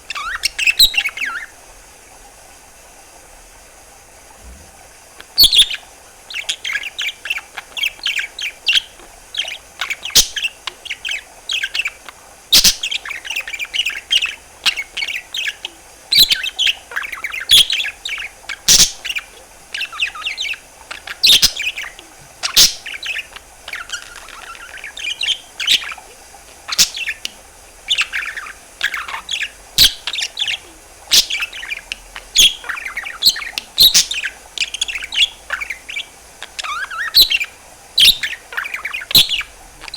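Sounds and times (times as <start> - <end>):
budgerigar warbling: 12.6 - 39.9.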